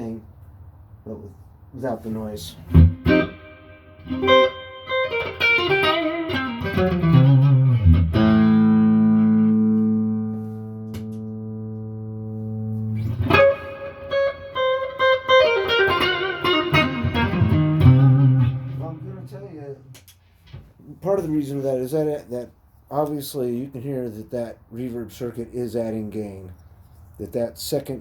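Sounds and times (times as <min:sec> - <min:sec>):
electric guitar with reverb: 0:02.6 - 0:20.0.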